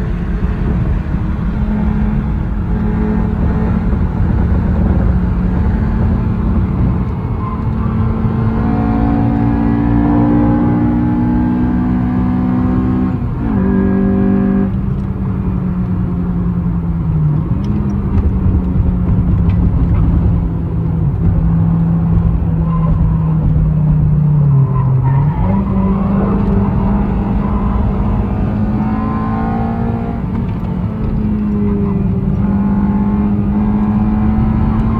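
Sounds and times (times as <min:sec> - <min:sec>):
car engine pulling hard: 0:00.0 - 0:34.9.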